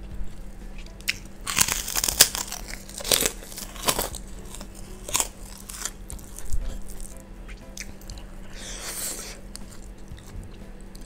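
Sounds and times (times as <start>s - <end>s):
cracker crunching while chewed: 0.3s - 7.2s.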